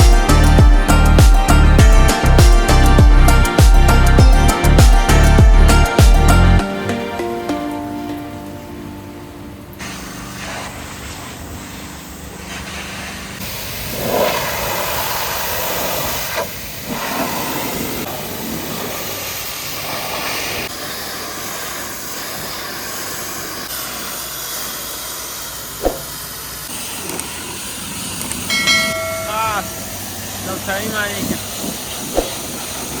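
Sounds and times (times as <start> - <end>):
pressure washer spraying: 9.8 - 33.0.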